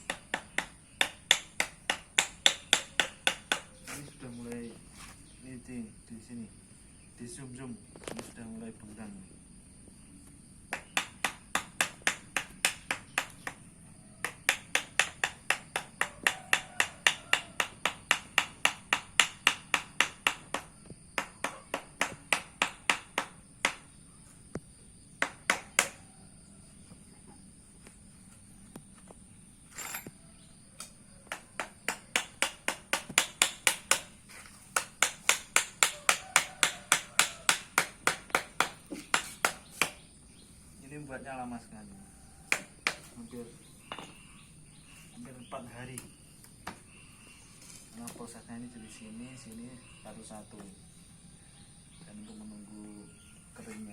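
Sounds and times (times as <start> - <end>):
sharp tapping on a mold: 0.0 - 4.0, 10.7 - 24.6, 25.2 - 26.0, 30.8 - 40.1, 42.5 - 44.3.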